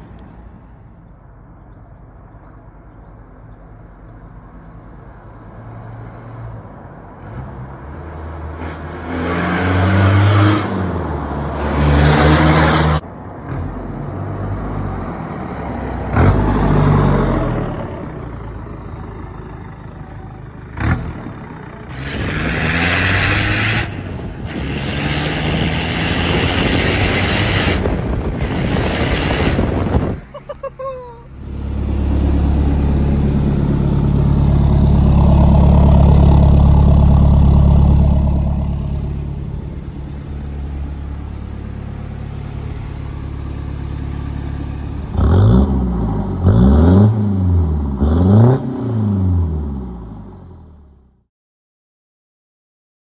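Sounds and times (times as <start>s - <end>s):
turbo diesel engine revving: 14.6s - 30.2s, 31.3s - 50.7s.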